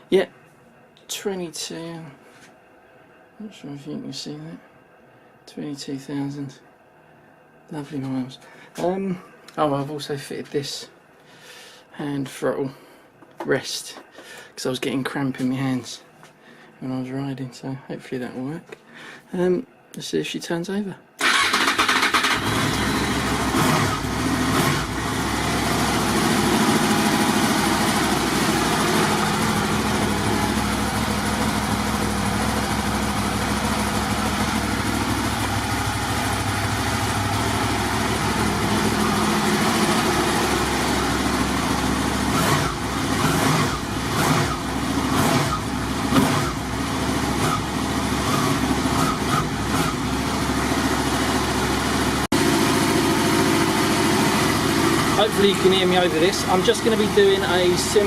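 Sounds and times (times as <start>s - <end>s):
motorcycle engine idling: 21.3s - 58.0s.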